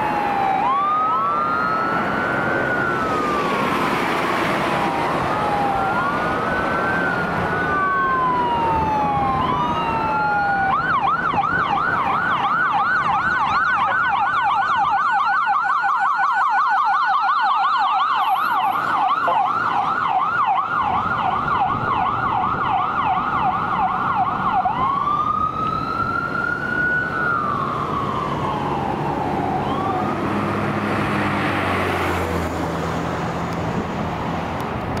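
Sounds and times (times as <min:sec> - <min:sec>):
emergency vehicle sirens: 0:00.0 - 0:35.0.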